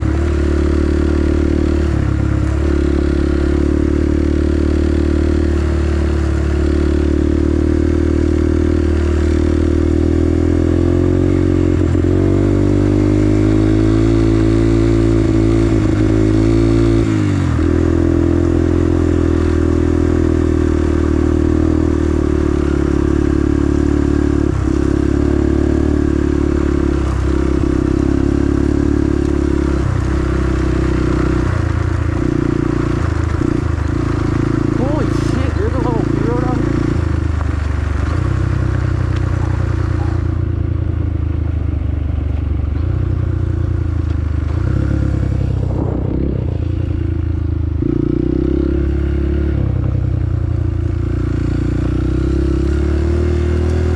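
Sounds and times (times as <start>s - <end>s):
motorcycle engine idling and revving: 0.0s - 53.9s.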